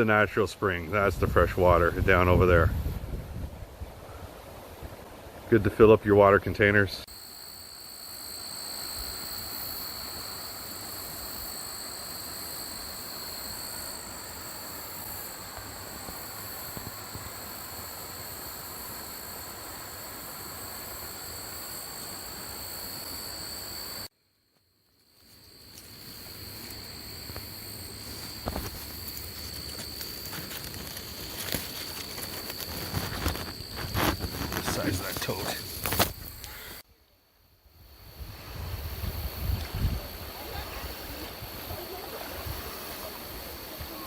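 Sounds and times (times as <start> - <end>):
high insect drone: 7.0 - 44.0.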